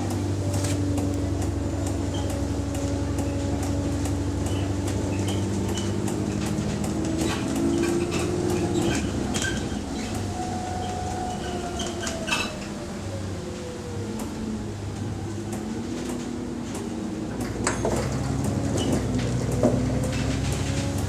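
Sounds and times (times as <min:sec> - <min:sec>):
bus diesel engine droning: 0:00.0 - 0:21.0
interior fittings rattling and clicking: 0:00.9 - 0:10.3.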